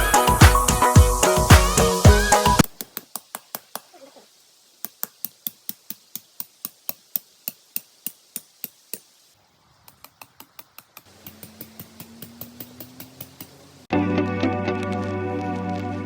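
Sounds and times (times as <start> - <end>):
sharp taps: 10.0 - 13.7.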